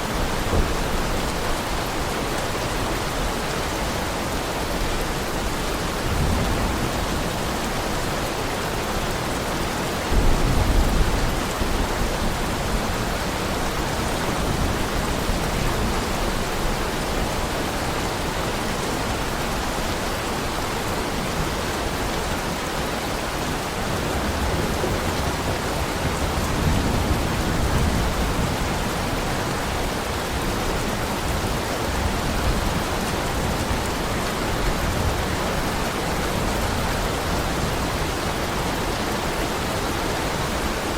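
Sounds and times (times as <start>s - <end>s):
thunder rumbling: 0.0s - 2.0s, 10.1s - 16.3s
heavy rain: 0.0s - 40.9s.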